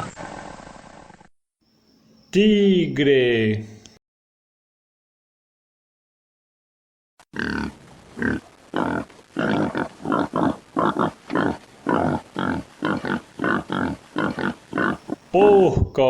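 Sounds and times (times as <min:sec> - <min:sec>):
pig grunting: 0:07.4 - 0:15.4.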